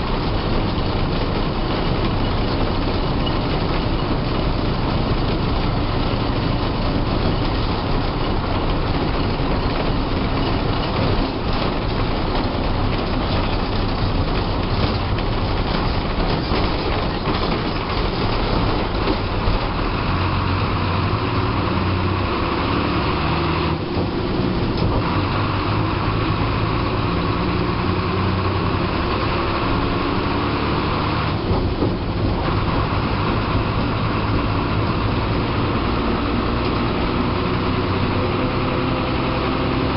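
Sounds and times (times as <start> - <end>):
bus diesel engine: 0.0 - 39.9
road noise: 0.0 - 39.9.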